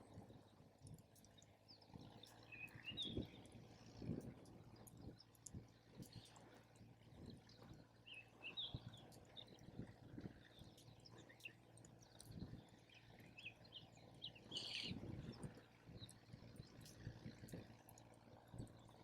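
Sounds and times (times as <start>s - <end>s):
small birds chirping: 1.2s - 3.5s, 10.4s - 17.6s.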